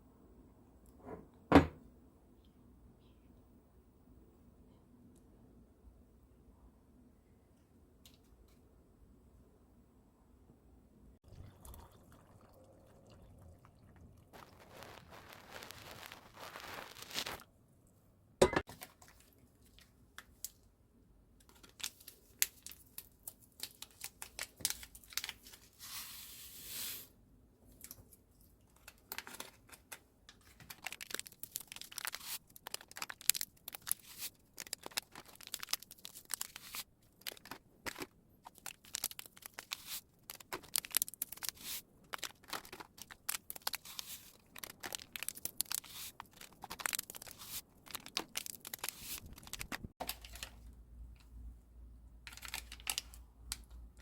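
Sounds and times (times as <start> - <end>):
crinkling and tearing: 14.3 - 17.5, 27.7 - 50.7, 52.3 - 54.0.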